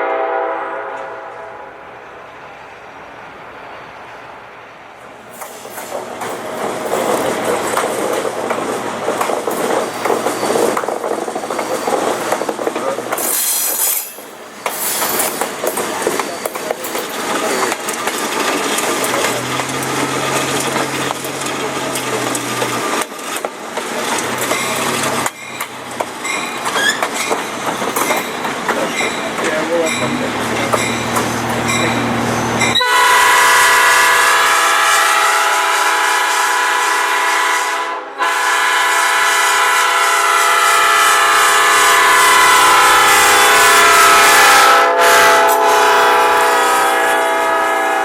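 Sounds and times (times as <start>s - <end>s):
diesel locomotive drone: 0.0s - 48.0s
train wheels rumbling on rail: 0.8s - 48.0s.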